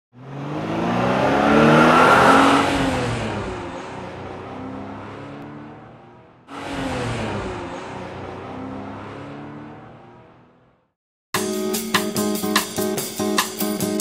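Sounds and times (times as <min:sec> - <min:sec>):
car engine revving: 0:00.1 - 0:10.9.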